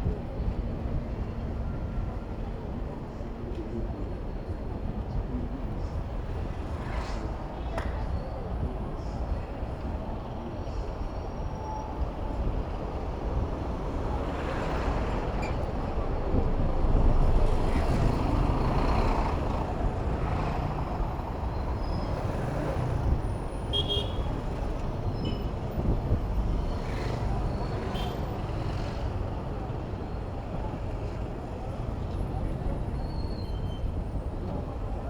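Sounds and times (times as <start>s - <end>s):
city road traffic: 0.0s - 35.0s
wind rumble on microphone: 12.0s - 27.9s.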